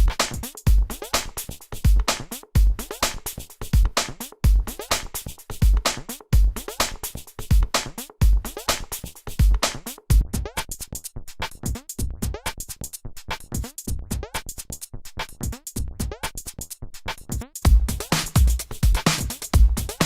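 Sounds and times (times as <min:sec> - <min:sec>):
deep kick drum: 0:00.0 - 0:01.0, 0:02.6 - 0:02.9, 0:03.8 - 0:04.8, 0:05.6 - 0:06.7, 0:07.5 - 0:08.5, 0:09.4 - 0:10.5, 0:17.6 - 0:20.0
electronic drum machine music: 0:00.0 - 0:10.8, 0:15.4 - 0:20.0.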